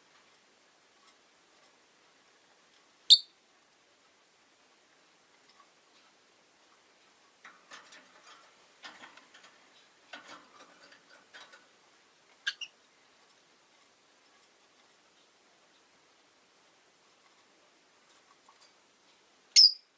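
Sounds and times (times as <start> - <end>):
bird chirp: 3.1 - 3.4, 12.4 - 12.8, 19.6 - 19.9
lovebirds clicking and tapping: 6.8 - 12.8.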